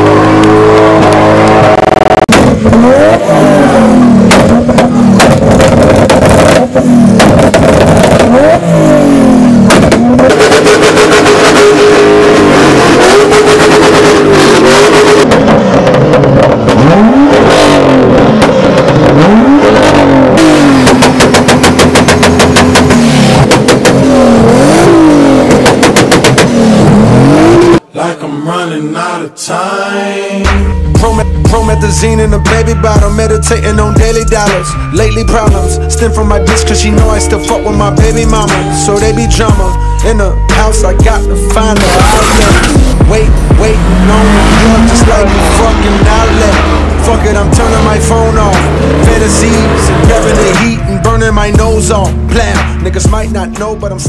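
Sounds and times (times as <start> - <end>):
sharp exhaust cracks: 0.0 - 27.3, 40.5 - 53.7
car engine revving hard: 0.0 - 27.8, 30.5 - 54.0.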